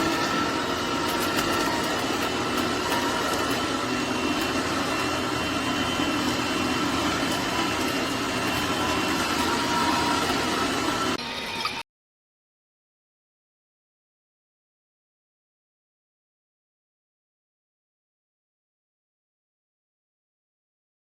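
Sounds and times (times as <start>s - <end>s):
electric juicer motor humming: 0.0s - 11.8s.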